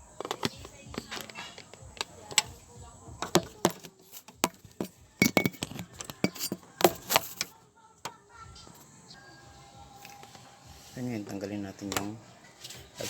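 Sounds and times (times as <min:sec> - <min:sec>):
metal hand tools clinking: 0:03.2 - 0:07.5.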